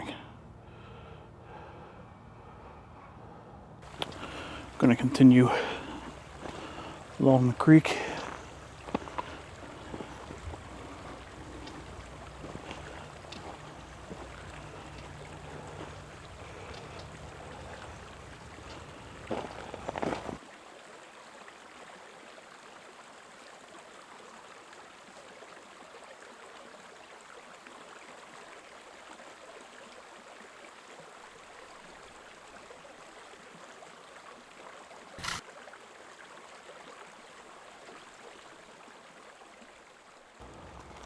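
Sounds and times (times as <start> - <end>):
creek water running: 3.8 - 41.0
sharp click: 35.2 - 35.4.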